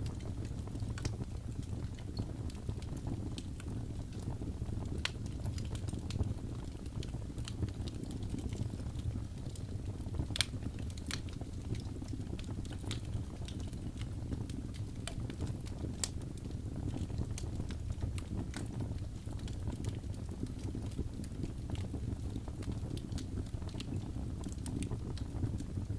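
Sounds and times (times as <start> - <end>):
wood fire crackling: 0.0 - 25.9.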